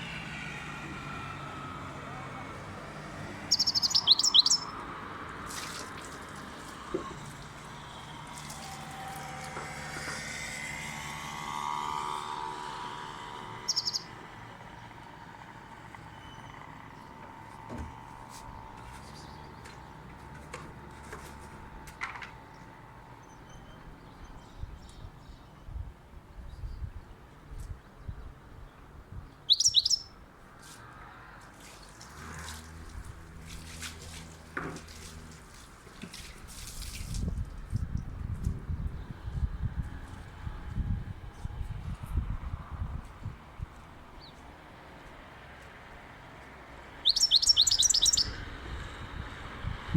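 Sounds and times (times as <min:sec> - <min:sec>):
bird chirping: 0:03.5 - 0:04.8, 0:13.6 - 0:14.2, 0:29.3 - 0:30.2, 0:46.9 - 0:48.4
goldfinch calling: 0:03.5 - 0:04.8, 0:13.6 - 0:14.2, 0:29.5 - 0:30.2, 0:47.0 - 0:48.4.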